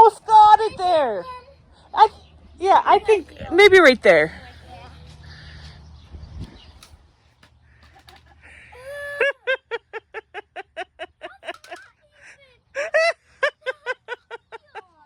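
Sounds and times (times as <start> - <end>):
high-pitched laughter: 7.9 - 15.0.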